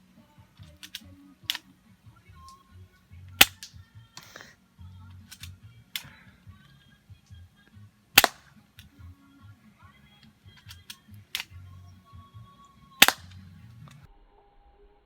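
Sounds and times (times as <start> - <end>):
faint clicks: 0.6 - 1.7, 10.2 - 11.6
airsoft pistol shots: 3.4 - 4.4, 8.2 - 8.6, 13.0 - 13.4.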